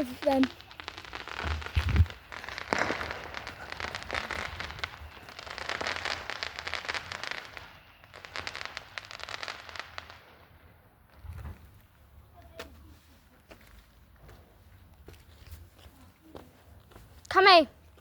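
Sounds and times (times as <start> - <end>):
loud firework crack: 0.0 - 11.7
distant fireworks crackling: 0.0 - 12.7.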